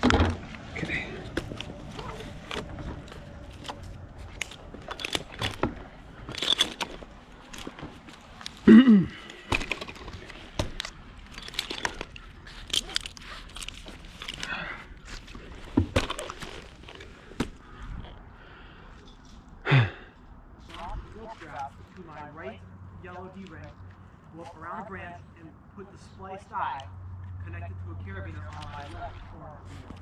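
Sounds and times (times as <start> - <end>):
climbing hardware clicks and scrapes: 0.0 - 18.2
person grunting: 8.6 - 9.3, 19.6 - 20.2.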